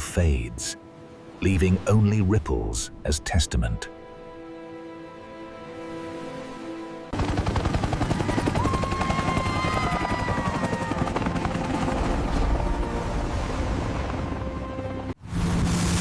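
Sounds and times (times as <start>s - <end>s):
helicopter rotor chop: 7.2s - 12.6s.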